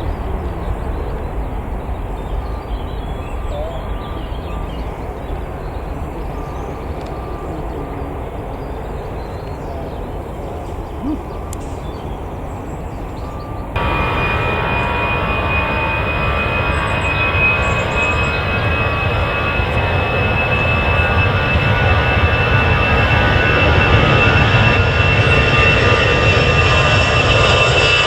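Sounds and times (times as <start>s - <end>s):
jet engines rumbling: 0.0s - 28.0s
high-pitched jet whine: 12.6s - 28.0s.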